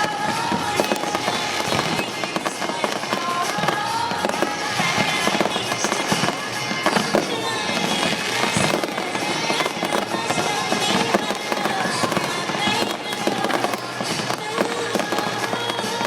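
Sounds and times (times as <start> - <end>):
fireworks bangs and crackling: 0.0 - 16.0
music playing: 0.0 - 16.0.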